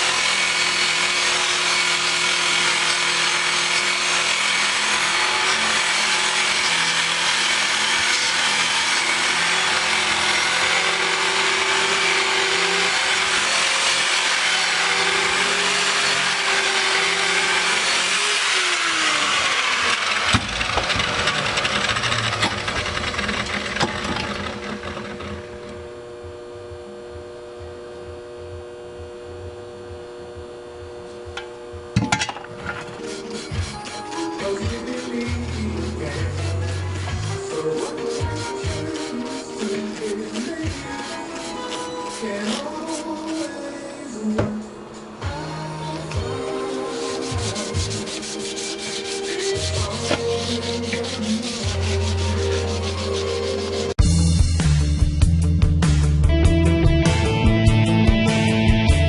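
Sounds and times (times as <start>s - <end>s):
power tool motor hum: 0.0s - 54.0s
scraping and rubbing: 32.4s - 43.8s, 46.3s - 54.0s
gritty polishing hiss: 32.9s - 44.3s, 46.2s - 54.0s.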